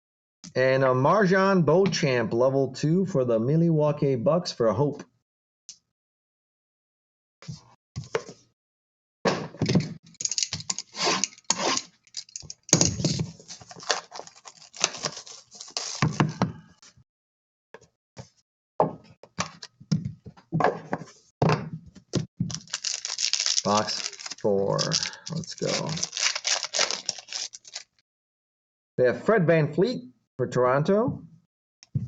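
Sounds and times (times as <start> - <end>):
card packs rustling: 12.1 - 16.4, 22.5 - 28.0.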